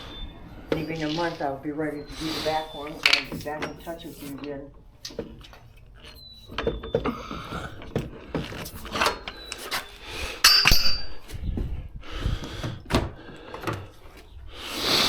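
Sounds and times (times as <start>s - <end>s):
metal tools clinking and scraping: 0.0s - 11.5s.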